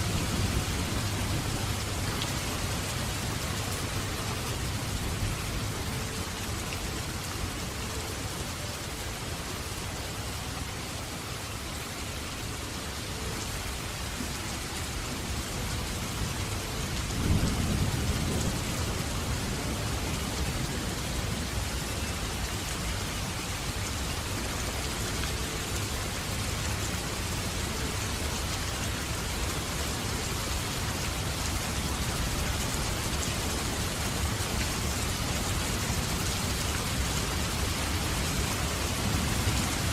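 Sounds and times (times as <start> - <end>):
steady rain falling: 0.0 - 39.9
thunder rumble: 17.0 - 21.5.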